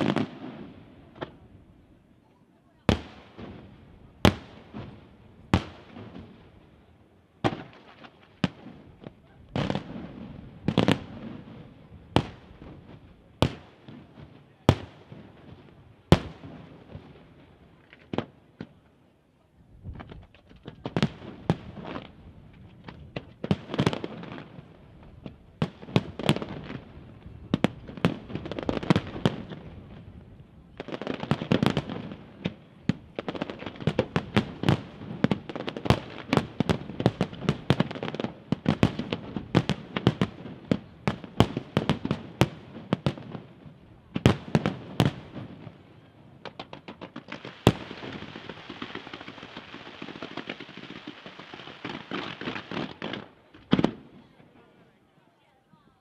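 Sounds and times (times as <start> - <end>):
fireworks bursting with sharp bangs: 0.0 - 18.9, 19.7 - 55.1
fireworks hiss: 47.3 - 53.1.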